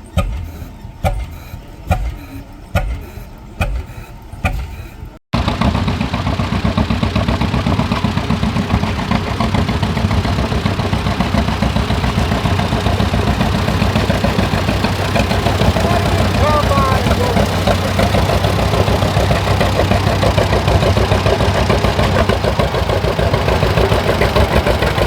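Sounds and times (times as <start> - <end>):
engine firing slow pops: 0.0 - 25.0
loud engine running: 5.3 - 25.0.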